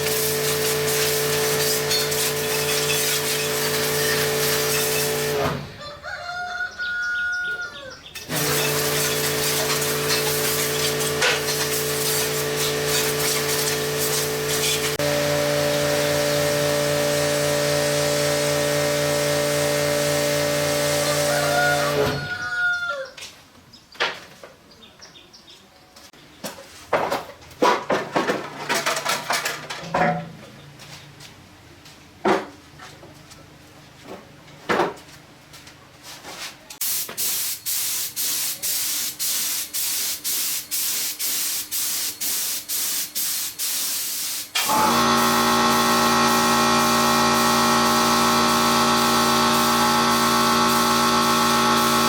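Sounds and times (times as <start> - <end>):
motor-driven machine humming: 44.6 - 52.0.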